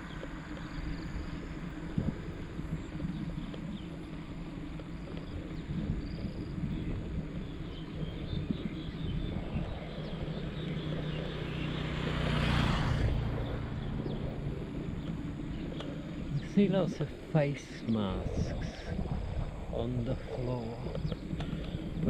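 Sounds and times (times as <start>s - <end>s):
wind and road rumble: 0.0s - 22.0s
vehicle passing close by: 9.2s - 16.6s.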